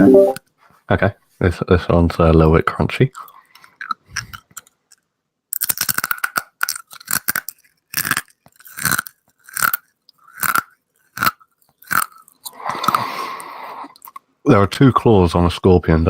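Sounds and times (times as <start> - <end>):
person chewing crunchy shell: 3.2 - 14.3.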